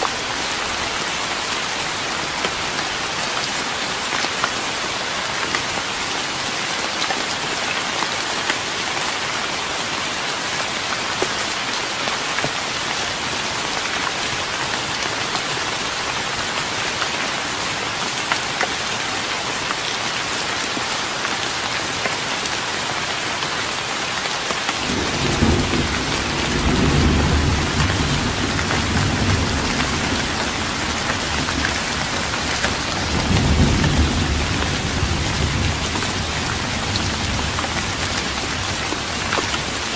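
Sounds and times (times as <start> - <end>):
rain on a wooden deck: 0.0 - 39.9
low thunder rumble: 24.8 - 38.2.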